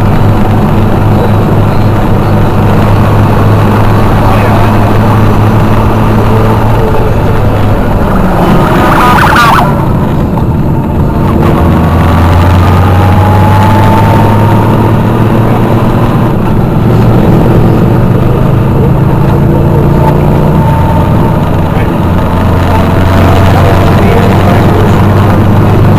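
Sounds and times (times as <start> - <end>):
motorcycle engines running: 0.0 - 25.9
brief sharp sound: 8.4 - 10.0.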